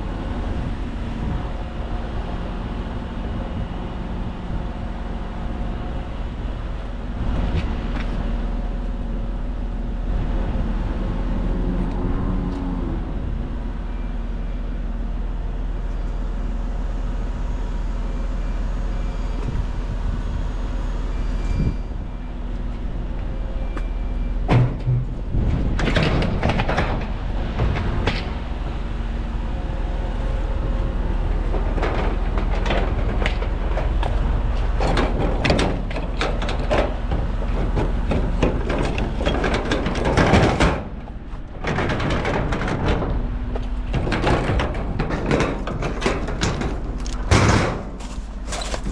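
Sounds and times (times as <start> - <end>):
clanks knocks and rattles: 24.5 - 28.4, 31.2 - 48.9.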